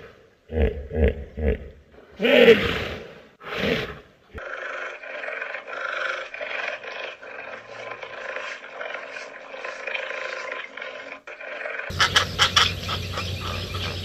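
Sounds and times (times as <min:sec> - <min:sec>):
hippopotamus roaring grunt: 0:02.2 - 0:12.0
high chirping calls: 0:11.9 - 0:14.0.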